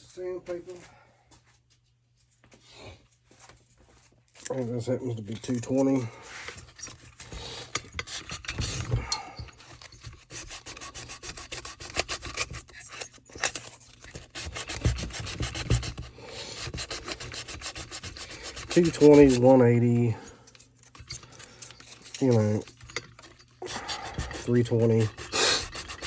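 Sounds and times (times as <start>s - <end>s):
hand sanding strokes: 10.3s - 12.6s, 14.2s - 20.0s, 23.6s - 26.0s.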